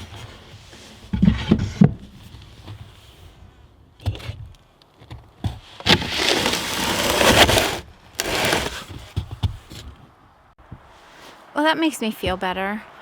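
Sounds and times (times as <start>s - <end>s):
wood scraping on wood: 5.8s - 9.2s.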